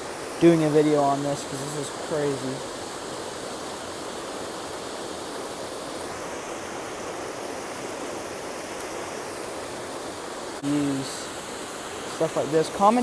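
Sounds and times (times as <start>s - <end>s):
water pouring over spillway: 0.0s - 13.0s.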